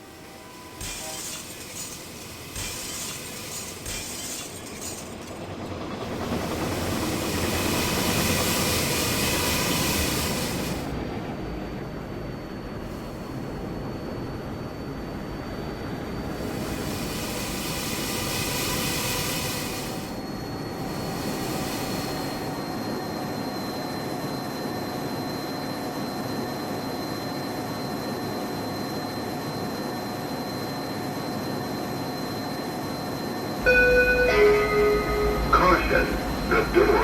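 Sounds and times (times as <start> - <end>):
train rumbling: 0.0 - 14.6, 33.6 - 37.0
constant tones: 33.6 - 37.0.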